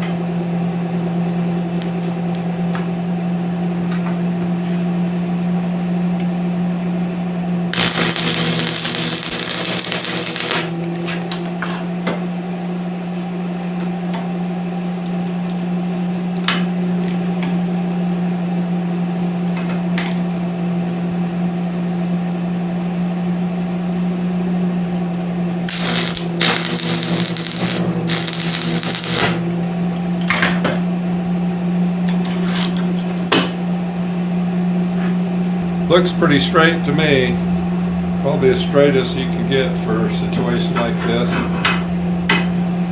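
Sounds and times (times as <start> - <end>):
welder hum: 7.7 - 12.0, 25.7 - 30.2
crackling welding arc: 7.8 - 12.0, 25.7 - 30.0.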